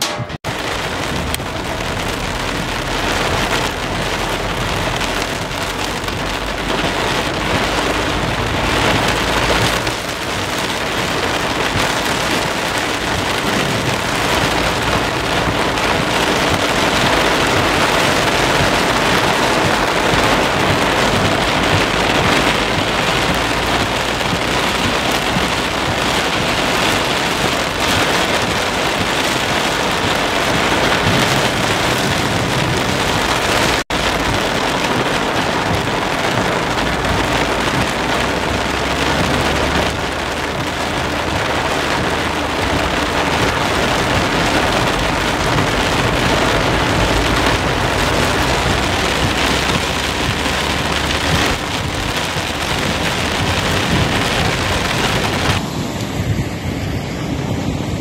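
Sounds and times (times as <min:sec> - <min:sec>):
heavy rain on car windscreen: 0:00.0 - 0:55.7.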